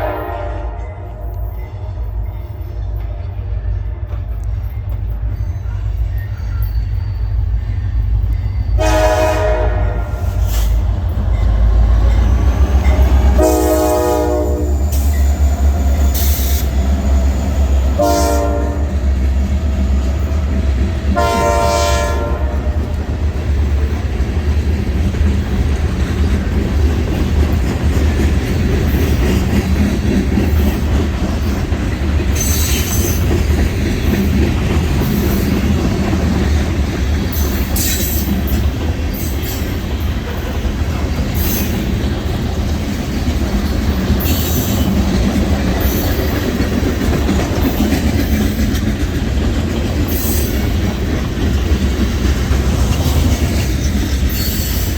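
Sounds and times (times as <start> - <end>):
locomotive horn blasts: 0.0 - 1.4, 8.8 - 10.5, 12.9 - 15.1, 17.9 - 19.1, 21.2 - 23.0
train rumbling past: 0.0 - 54.9
train wheel noise: 0.0 - 54.9.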